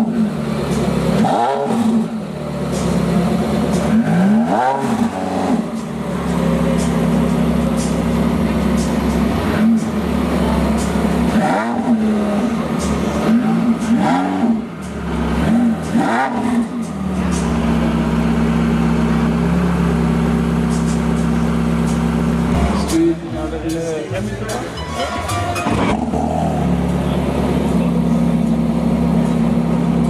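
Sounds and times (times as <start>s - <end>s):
sports car engine idling and revving: 0.0s - 30.0s.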